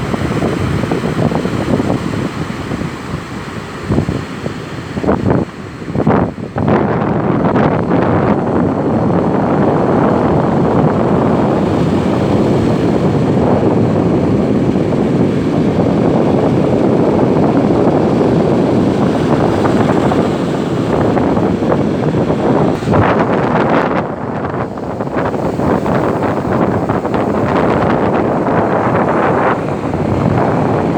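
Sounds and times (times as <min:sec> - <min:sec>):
wind on microphone: 0:00.0 - 0:30.9
surf breaking: 0:08.9 - 0:30.9.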